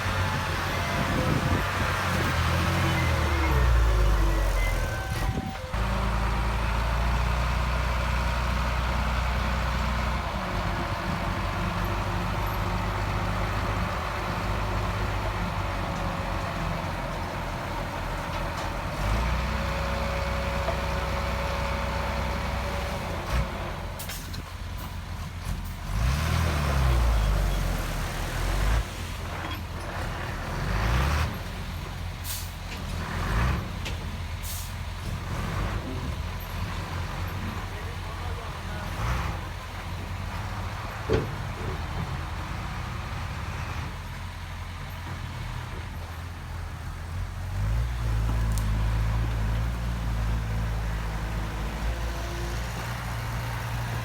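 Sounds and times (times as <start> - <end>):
heavy diesel engines droning: 0.0 - 54.0
truck air brakes hissing: 32.2 - 32.6, 34.4 - 34.8.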